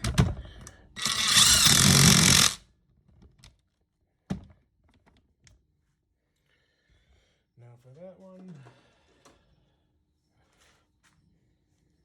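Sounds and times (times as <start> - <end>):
power tool running: 1.0 - 2.6.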